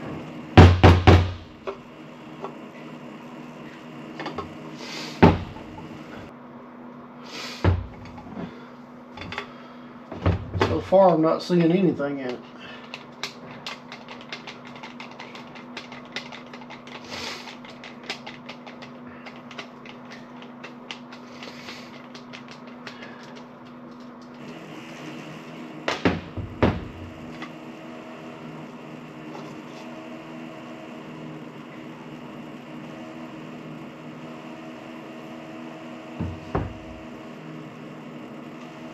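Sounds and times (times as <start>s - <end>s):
steady hum: 0.0s - 38.9s
loud knocks: 0.6s - 1.4s
small clicks and taps of parts: 12.3s - 24.4s.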